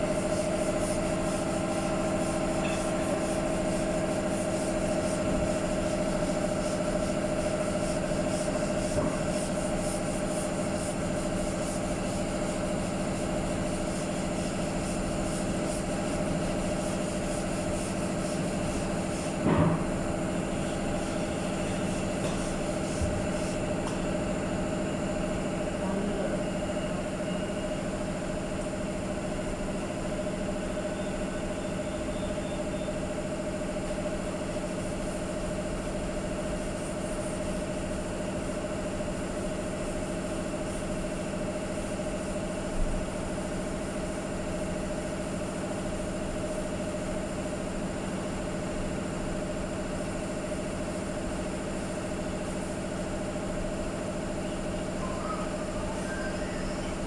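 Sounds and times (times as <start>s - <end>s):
brief knock: 19.4s - 19.9s.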